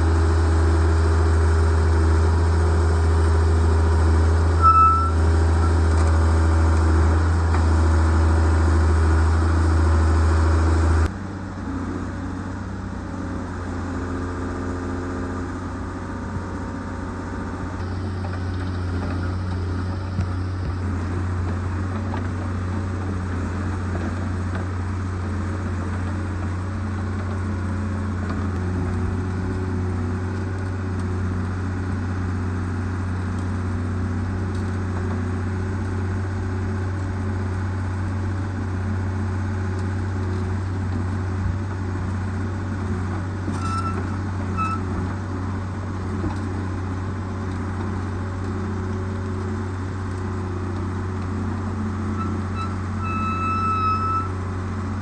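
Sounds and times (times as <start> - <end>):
diesel engine idling: 0.0 - 34.4
short high beeps: 4.6 - 5.8, 53.0 - 54.3.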